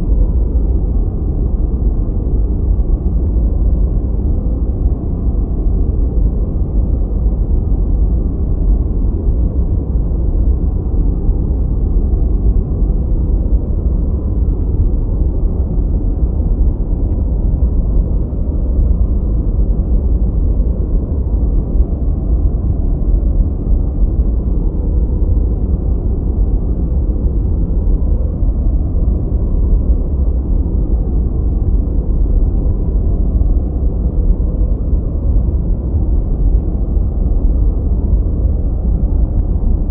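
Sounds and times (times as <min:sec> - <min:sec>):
low muffled white noise: 0:00.0 - 0:39.9.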